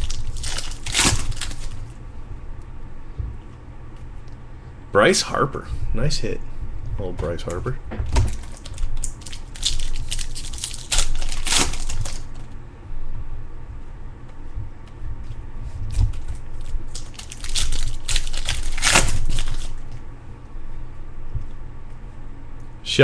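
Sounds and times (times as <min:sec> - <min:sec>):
foil wrappers torn and crumpled: 0:00.0 - 0:01.9, 0:08.2 - 0:12.5, 0:15.9 - 0:19.9.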